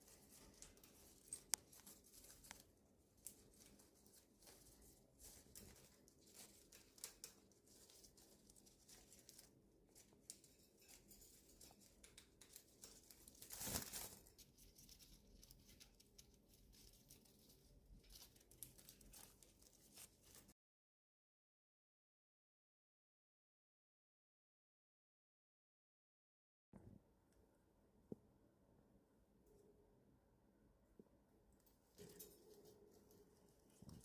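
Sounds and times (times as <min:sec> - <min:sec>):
leaves rustling and crinkling: 0:00.0 - 0:20.5.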